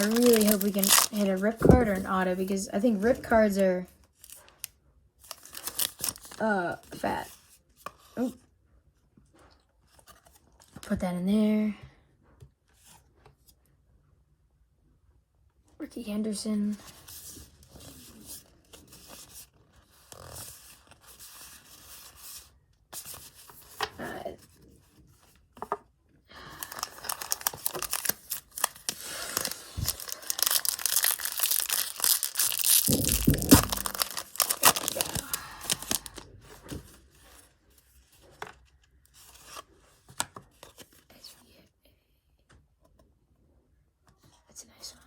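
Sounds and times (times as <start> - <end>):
card pack wrapper tearing: 0.0 - 2.0, 5.2 - 6.4, 26.6 - 36.3
low thump: 32.9 - 34.0.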